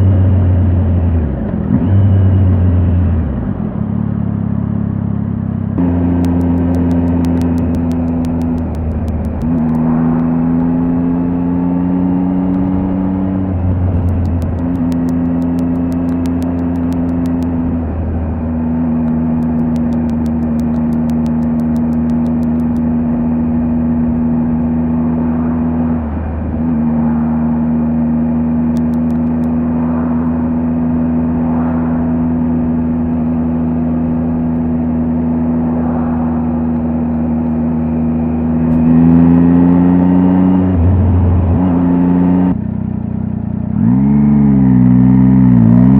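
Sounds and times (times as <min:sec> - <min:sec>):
motorcycle engine running: 0:00.0 - 0:25.5, 0:28.5 - 0:36.4.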